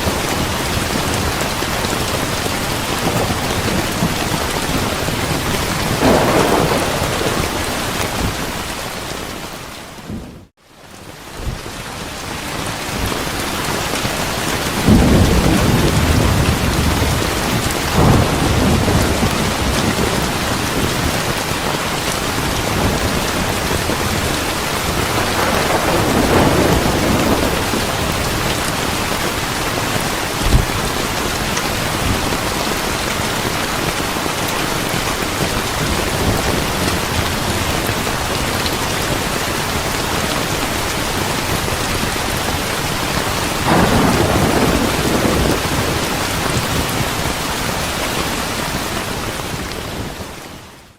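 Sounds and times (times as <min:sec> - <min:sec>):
thunder rolling: 0:00.0 - 0:10.5, 0:14.7 - 0:34.0, 0:43.4 - 0:50.1
steady rain: 0:00.0 - 0:50.9.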